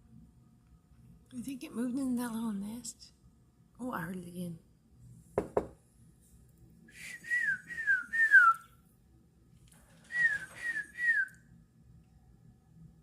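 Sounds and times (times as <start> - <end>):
person whistling bird-like call: 6.9 - 8.6, 10.1 - 11.4.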